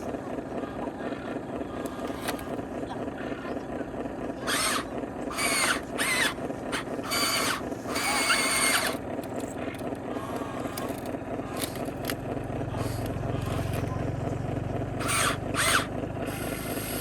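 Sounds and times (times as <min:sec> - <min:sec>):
steady mechanical buzz: 0:00.0 - 0:17.0
toy gear motors whining: 0:01.6 - 0:02.7, 0:04.3 - 0:14.1, 0:15.0 - 0:17.0.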